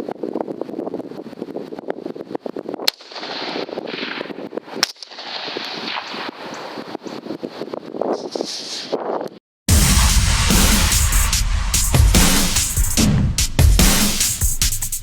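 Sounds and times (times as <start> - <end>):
rifle shots: 2.9 - 6.6.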